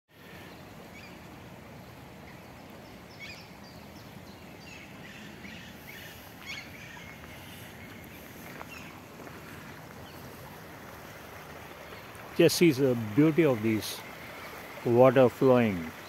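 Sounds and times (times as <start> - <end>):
stream of water running: 0.1 - 16.0
birds chirping: 0.2 - 16.0.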